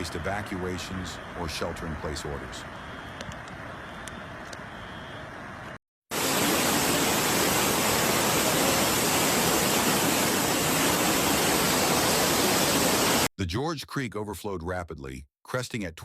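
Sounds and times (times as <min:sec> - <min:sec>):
rushing floodwater: 0:06.1 - 0:13.3.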